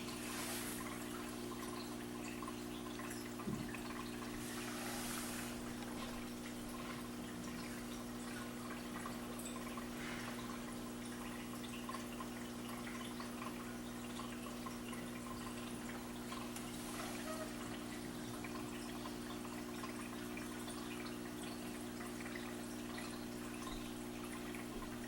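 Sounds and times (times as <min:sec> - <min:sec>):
water trickling into fish tank: 0:00.0 - 0:25.0.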